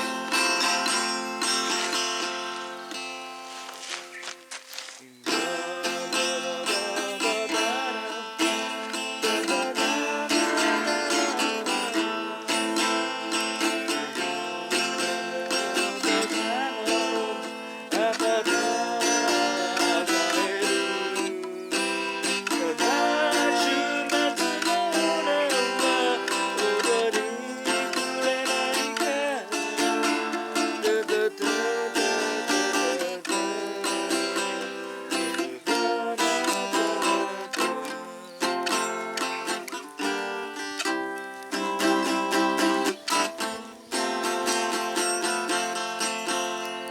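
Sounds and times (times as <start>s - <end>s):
acoustic guitar playing: 0.0s - 46.9s.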